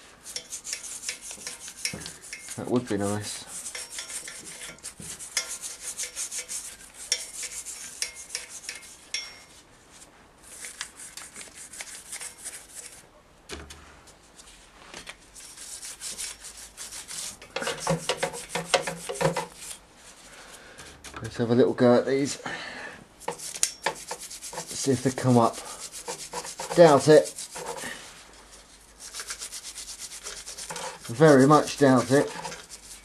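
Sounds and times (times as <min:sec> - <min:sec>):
scrubbing metal casing: 0:00.0 - 0:09.6, 0:15.4 - 0:19.8, 0:23.2 - 0:33.0.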